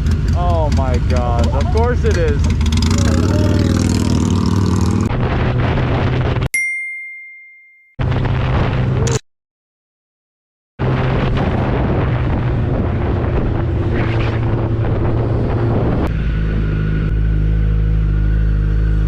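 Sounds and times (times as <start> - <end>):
motorcycle engine running: 0.0 - 6.4
wind noise on microphone: 2.5 - 6.5, 8.0 - 9.2, 10.8 - 17.2.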